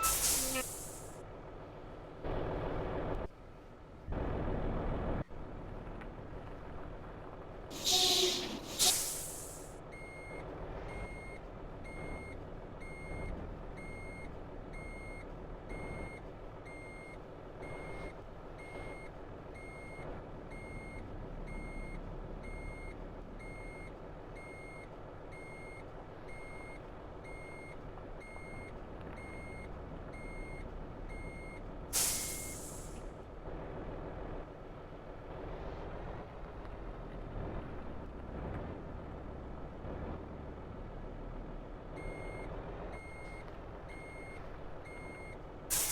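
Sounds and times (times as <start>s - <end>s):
reversing alarm beeping: 0.0s - 1.1s, 21.6s - 33.0s, 42.0s - 45.9s
air brakes hissing: 0.0s - 1.2s, 7.7s - 9.8s, 32.0s - 33.1s
diesel truck engine running: 0.0s - 45.9s.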